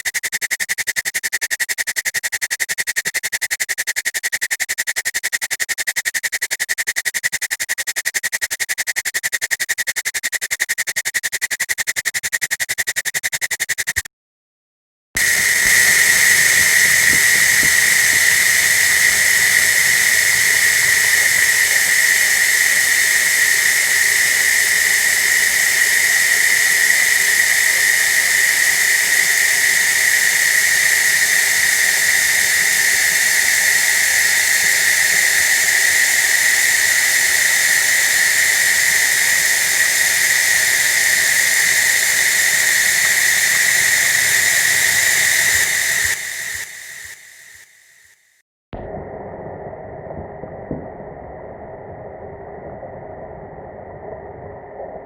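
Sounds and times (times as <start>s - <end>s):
loud steady hiss: 15.2s - 47.9s
constant high whistling tone: 15.2s - 48.3s.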